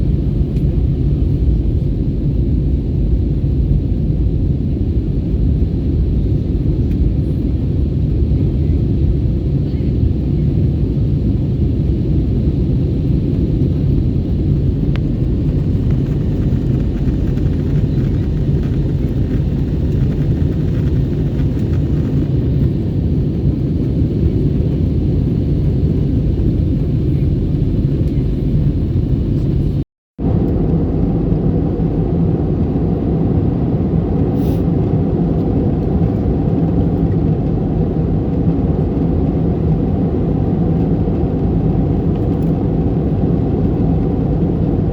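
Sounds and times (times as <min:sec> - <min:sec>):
airliner cabin engine rumble: 0:00.0 - 0:44.9.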